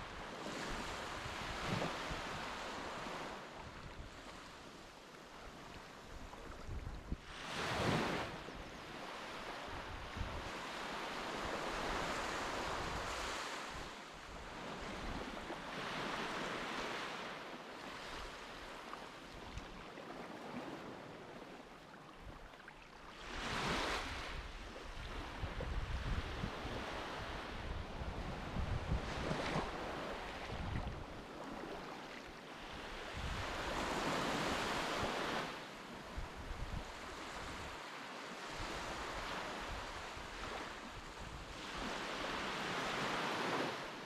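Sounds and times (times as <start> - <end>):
wind buffeting microphone: 23.6 - 31.2.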